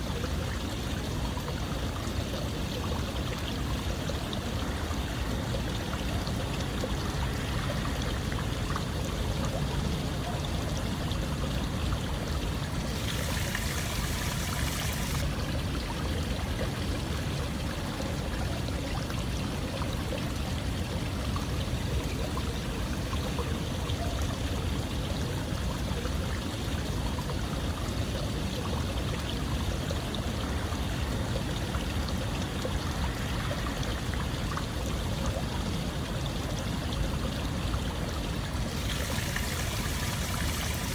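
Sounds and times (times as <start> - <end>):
running water splashing: 12.6 - 15.4, 38.5 - 40.9.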